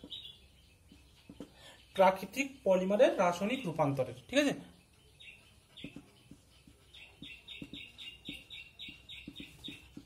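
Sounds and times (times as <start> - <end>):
small bird chirping: 0.0 - 10.0
marker writing on whiteboard: 5.8 - 10.0.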